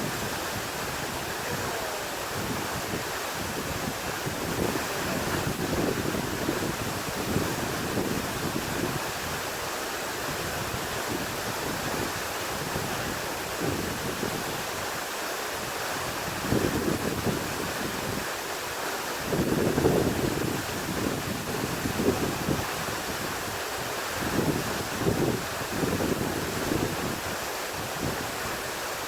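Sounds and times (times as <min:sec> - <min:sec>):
wind buffeting microphone: 0:00.0 - 0:09.6, 0:10.2 - 0:14.8, 0:15.8 - 0:18.3, 0:19.3 - 0:28.7
water rushing: 0:00.0 - 0:29.0.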